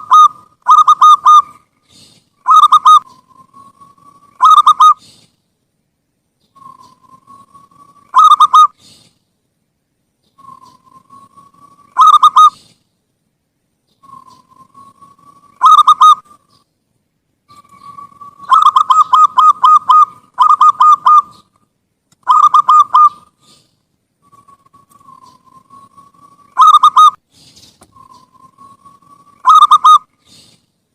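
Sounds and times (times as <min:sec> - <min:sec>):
dove cooing: 0:00.0 - 0:01.6, 0:02.4 - 0:05.2, 0:06.6 - 0:08.9, 0:10.4 - 0:12.6, 0:14.0 - 0:16.2, 0:17.5 - 0:21.5, 0:22.2 - 0:23.6, 0:24.2 - 0:27.2, 0:27.9 - 0:30.5.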